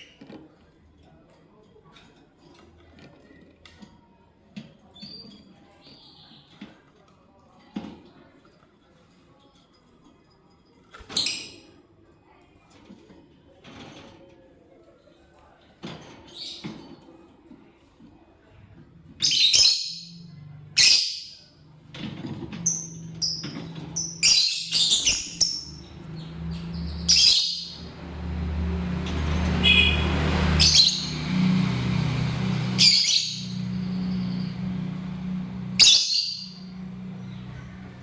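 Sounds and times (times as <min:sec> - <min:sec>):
lovebirds shrill calls: 0:19.2 - 0:20.2, 0:22.6 - 0:27.8, 0:29.6 - 0:31.4, 0:32.6 - 0:34.6, 0:35.6 - 0:37.6.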